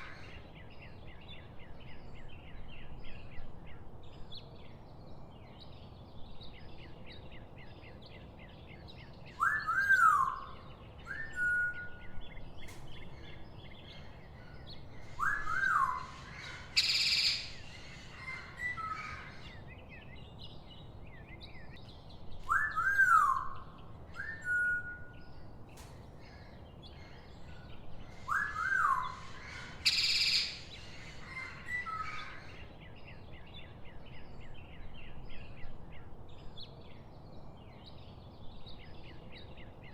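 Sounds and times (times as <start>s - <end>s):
faint chirping of small birds: 0.0s - 39.9s
bird whistled call: 9.4s - 12.1s, 15.2s - 16.1s, 22.5s - 23.6s, 24.2s - 25.1s, 28.3s - 30.7s
loud harsh bird call: 14.0s - 19.6s, 28.1s - 32.6s.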